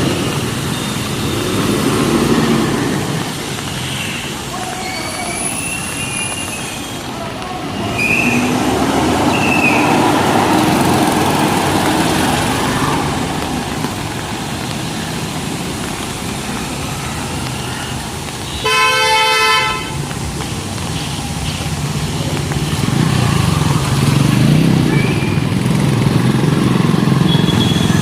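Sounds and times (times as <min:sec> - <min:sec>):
road traffic noise: 0:00.0 - 0:28.0
vehicle horn honking: 0:18.5 - 0:20.0, 0:27.3 - 0:28.0.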